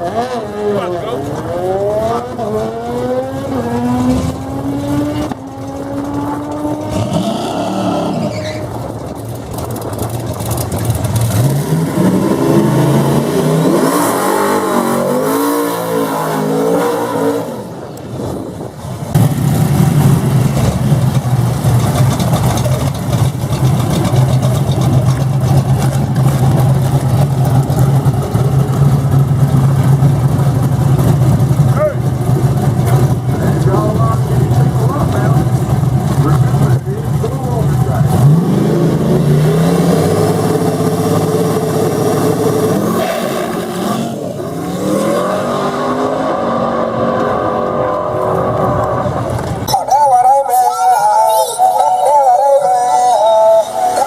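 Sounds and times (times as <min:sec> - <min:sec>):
engine revving: 0:00.0 - 0:08.4, 0:10.6 - 0:17.8, 0:19.1 - 0:49.7
car engine accelerating: 0:00.0 - 0:49.8
loud engine running steadily: 0:17.7 - 0:43.0.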